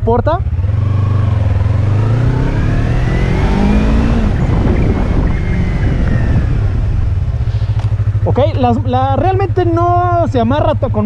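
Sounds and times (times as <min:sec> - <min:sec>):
motorcycle engine slowing: 0:00.0 - 0:11.0
wind rushing over microphone: 0:00.6 - 0:08.3.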